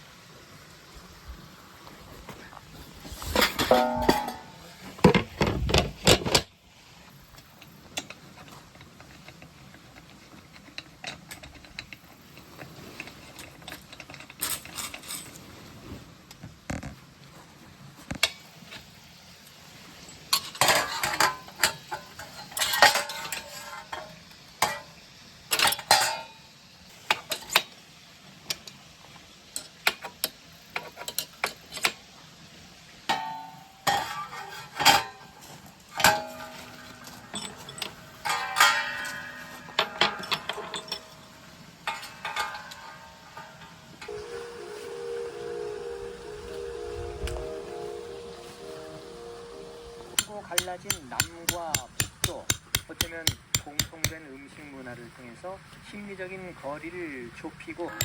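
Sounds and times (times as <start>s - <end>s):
utensils and dishes clinking: 3.2s - 5.3s, 20.1s - 26.4s, 33.1s - 54.2s.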